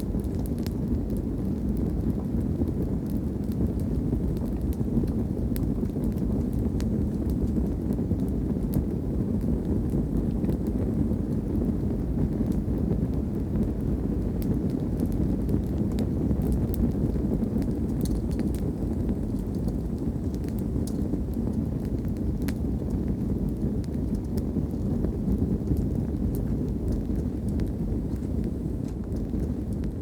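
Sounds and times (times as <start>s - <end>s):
low rumble of fire flames: 0.0s - 30.0s
wood crackling and popping: 0.0s - 30.0s.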